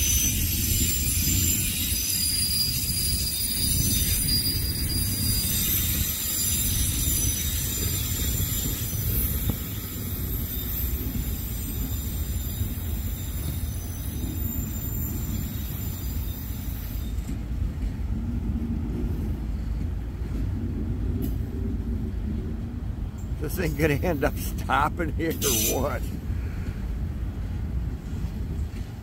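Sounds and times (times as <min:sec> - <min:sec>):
high-pitched wheel squeal: 0:00.0 - 0:17.4, 0:25.2 - 0:26.0
freight train wheels rumbling on rail: 0:00.0 - 0:29.0.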